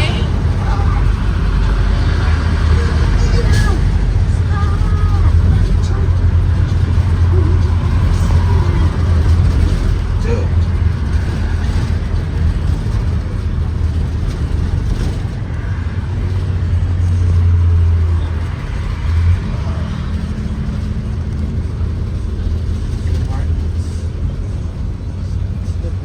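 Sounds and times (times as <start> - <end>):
bus engine rumble: 0.0 - 26.0
road and cabin noise: 0.0 - 26.0.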